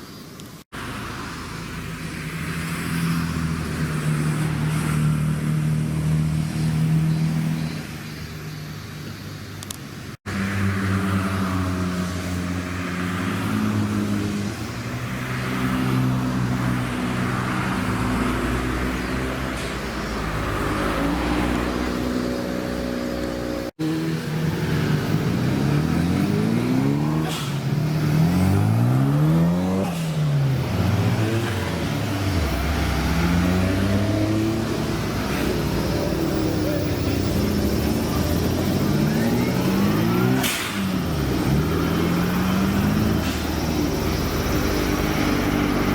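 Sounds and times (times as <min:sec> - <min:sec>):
engine revving: 0:00.7 - 0:07.9, 0:10.2 - 0:45.9
car engine running: 0:22.6 - 0:45.9.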